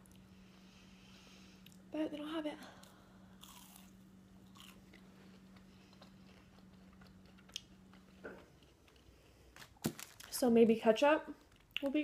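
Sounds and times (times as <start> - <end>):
low steady hum: 0.0 - 12.0
chewing crunchy fried food: 2.8 - 10.2.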